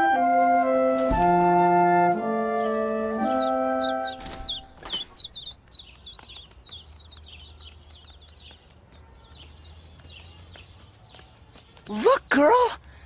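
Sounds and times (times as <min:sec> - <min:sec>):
held musical chord: 0:00.0 - 0:04.3
small birds chirping: 0:02.4 - 0:13.0.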